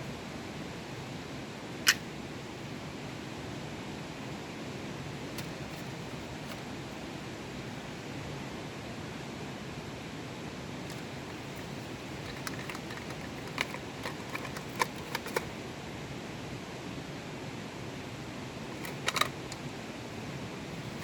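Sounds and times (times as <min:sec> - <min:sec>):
light clicks and taps: 0:10.9 - 0:15.5, 0:18.8 - 0:19.6.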